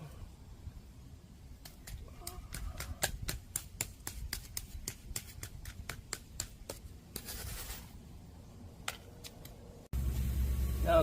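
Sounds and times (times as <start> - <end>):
sharp tamping taps: 1.6 - 7.3
scraping rustle: 7.1 - 8.0.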